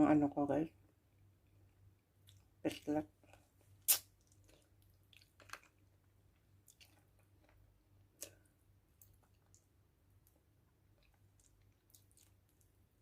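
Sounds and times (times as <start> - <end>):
wet chewing smacks: 3.3 - 5.9, 11.0 - 12.8.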